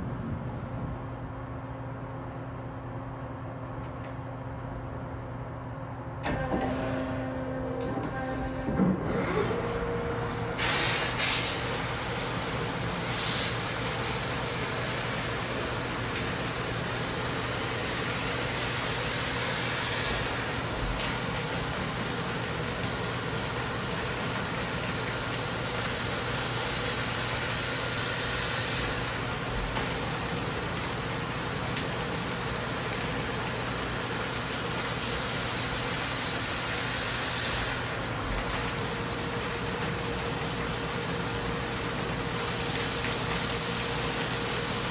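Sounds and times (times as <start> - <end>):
machine hum: 5.9 - 18.8
coolant hiss: 8.1 - 44.9.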